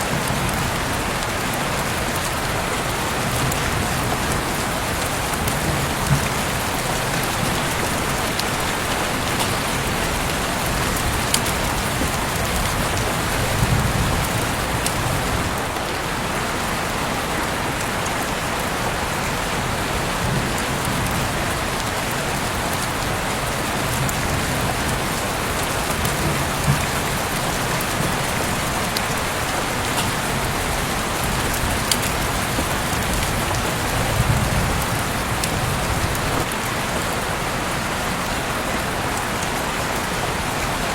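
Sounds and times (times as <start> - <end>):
raindrops ticking: 0.0 - 15.9, 20.2 - 36.5
heavy rain hissing: 0.0 - 40.9.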